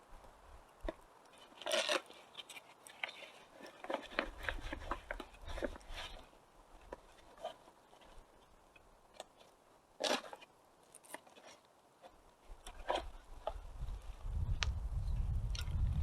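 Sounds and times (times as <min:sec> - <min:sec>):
wind rumble on microphone: 0:13.0 - 0:16.0.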